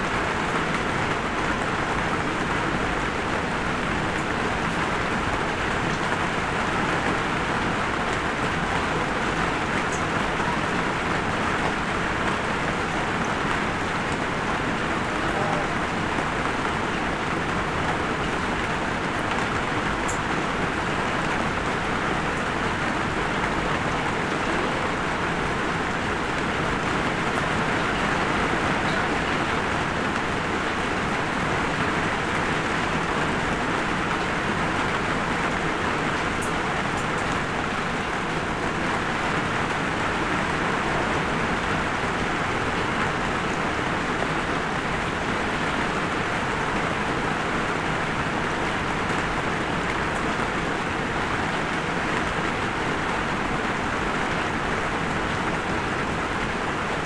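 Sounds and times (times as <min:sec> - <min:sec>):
light rain hiss: 0:00.0 - 0:57.0
faint raindrop ticks: 0:04.1 - 0:07.3, 0:09.8 - 0:14.2, 0:17.8 - 0:20.4, 0:27.3 - 0:29.5, 0:34.0 - 0:38.2.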